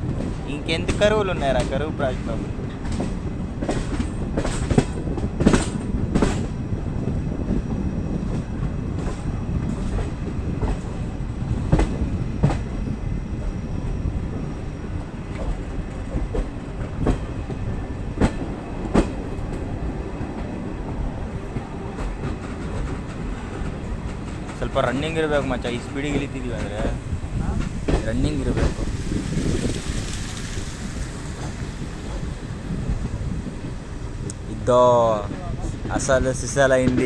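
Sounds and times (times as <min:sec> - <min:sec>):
train coaches rumbling: 0:00.0 - 0:37.0
wheels clacking over rail joints: 0:21.4 - 0:37.0.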